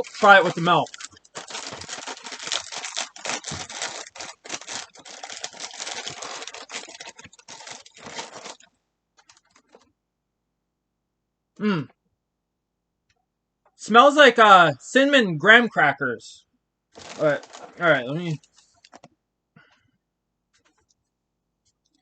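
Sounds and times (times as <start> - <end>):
plastic bag crinkling and tearing: 0.0 - 9.8, 17.0 - 19.0.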